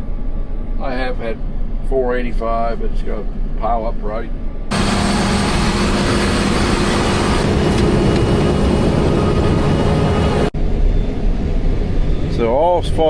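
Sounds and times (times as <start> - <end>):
combine harvester drone: 4.5 - 13.0.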